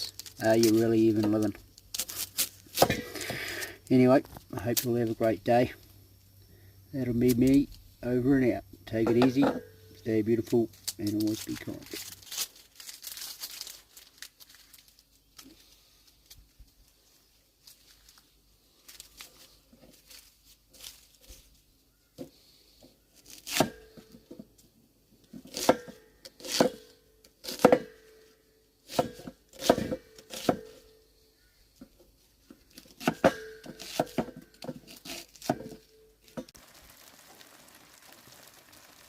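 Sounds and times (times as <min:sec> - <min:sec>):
faint steady hiss: 0:00.0 - 0:25.5, 0:30.9 - 0:39.0
axe chopping on a board: 0:02.8 - 0:03.1, 0:27.5 - 0:28.0, 0:29.0 - 0:30.7.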